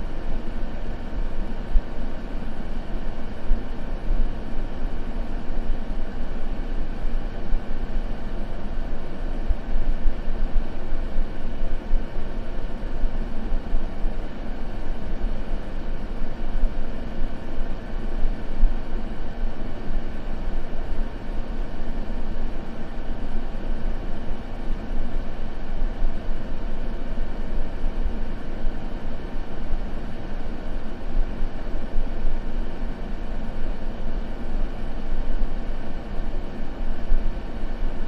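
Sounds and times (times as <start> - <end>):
deep white noise: 0.0 - 38.0.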